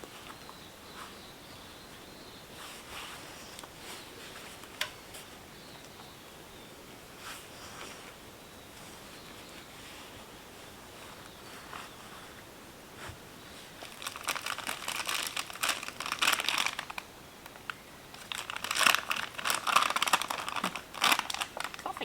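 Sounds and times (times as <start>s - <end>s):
plastic packaging crinkling: 13.8s - 22.0s.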